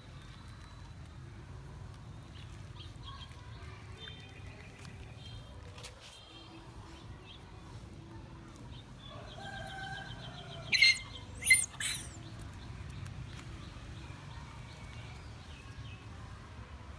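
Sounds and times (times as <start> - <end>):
faint chirping: 10.5 - 12.2
high-pitched animal calls: 10.7 - 12.2
quick run of ticks: 10.7 - 12.2.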